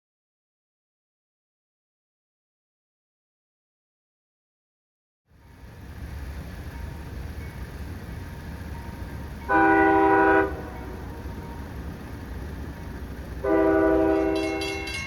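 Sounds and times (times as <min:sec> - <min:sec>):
train rumble: 0:05.3 - 0:15.0
locomotive air horn blasts: 0:09.5 - 0:11.0, 0:13.4 - 0:15.0.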